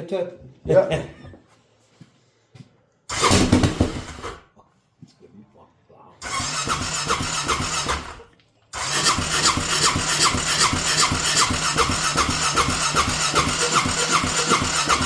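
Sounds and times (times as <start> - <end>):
electric starter cranking engine: 3.1 - 4.4, 6.2 - 15.0.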